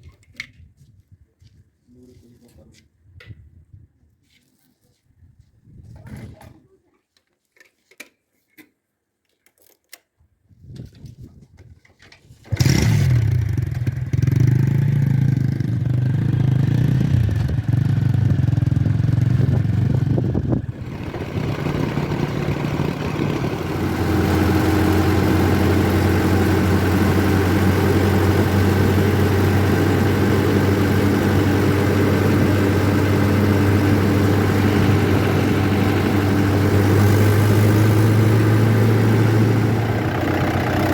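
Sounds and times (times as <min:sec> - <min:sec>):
heavy diesel engine running: 0:14.6 - 0:40.9.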